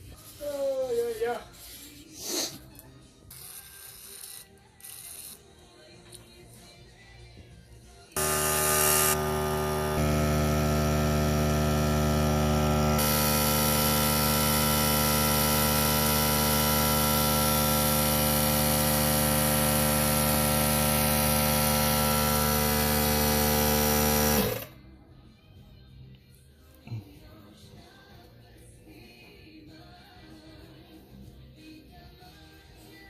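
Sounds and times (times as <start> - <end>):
small motor running: 8.2 - 24.7.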